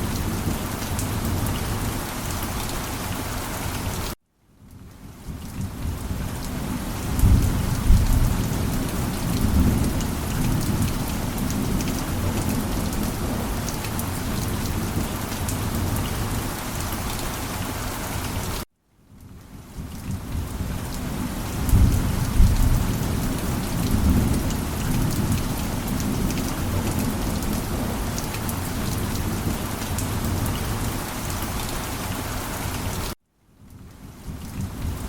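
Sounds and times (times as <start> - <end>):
heavy rain falling: 0.0 - 4.2, 5.0 - 18.7, 19.4 - 35.0
thunder rumbling: 5.6 - 16.4, 21.4 - 31.7.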